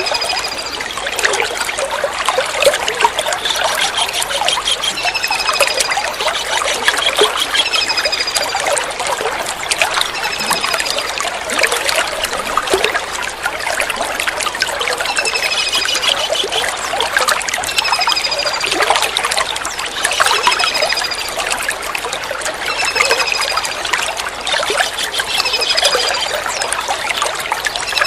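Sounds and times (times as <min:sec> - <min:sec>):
water trickling: 0:00.0 - 0:28.0
kingfisher trilled calls: 0:03.3 - 0:08.4.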